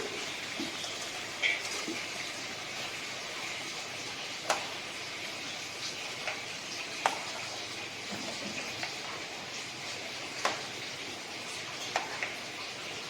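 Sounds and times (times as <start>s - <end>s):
chicken sizzling in pot: 0.0s - 13.0s.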